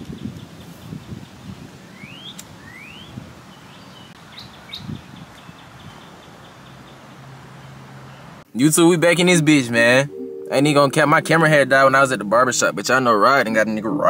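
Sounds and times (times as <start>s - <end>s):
bird whistled calls: 2.0s - 3.2s
low steady hum: 9.0s - 14.0s.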